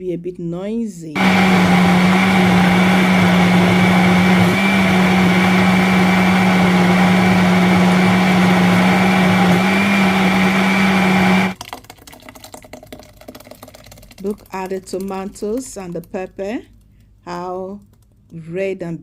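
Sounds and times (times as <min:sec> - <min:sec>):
electric blender running: 0:01.2 - 0:11.6.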